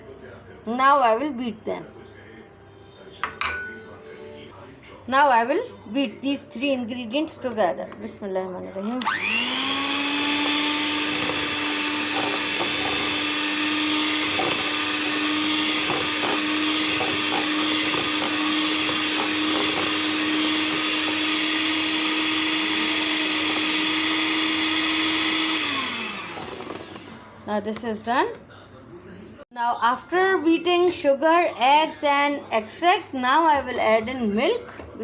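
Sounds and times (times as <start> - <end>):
electric mixer motor whine: 8.8 - 27.4.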